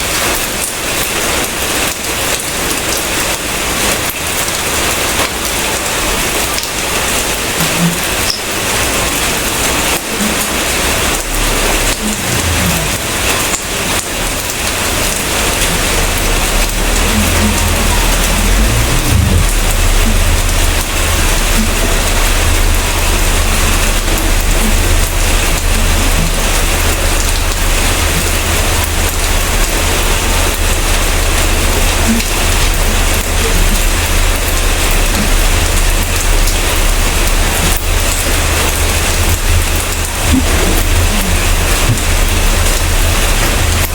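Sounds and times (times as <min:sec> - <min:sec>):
heavy rain falling: 0:00.0 - 0:43.9
low rumble: 0:10.2 - 0:43.9.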